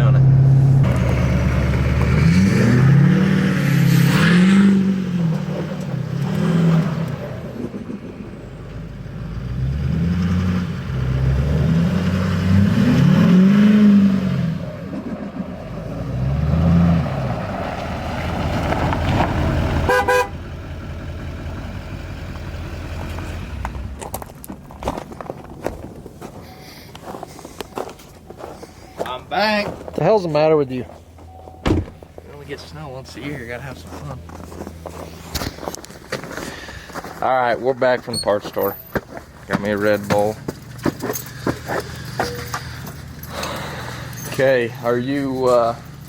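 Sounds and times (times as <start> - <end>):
engine running steadily: 0.0 - 2.8, 38.8 - 46.0
engine revving: 0.0 - 24.0.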